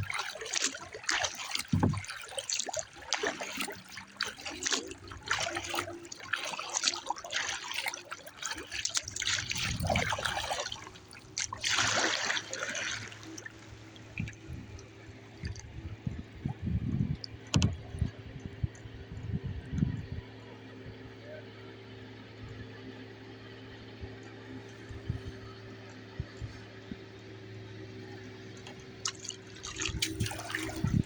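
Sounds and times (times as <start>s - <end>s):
water splashing and trickling: 0.0s - 18.8s, 28.3s - 31.0s.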